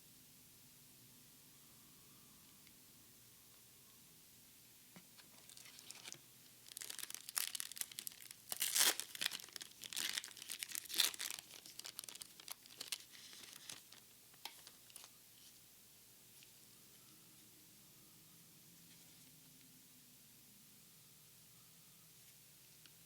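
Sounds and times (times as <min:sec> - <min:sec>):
foil wrapper crinkling and tearing: 0:05.4 - 0:15.1.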